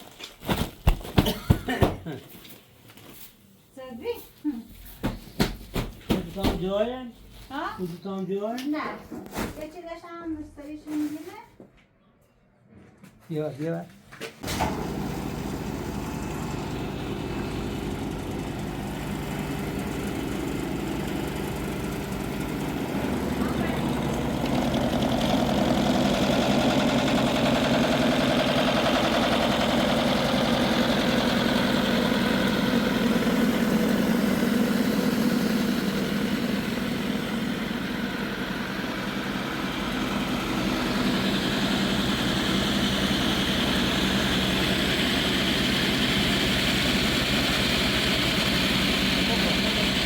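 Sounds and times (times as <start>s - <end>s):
engine running steadily: 14.4s - 50.0s.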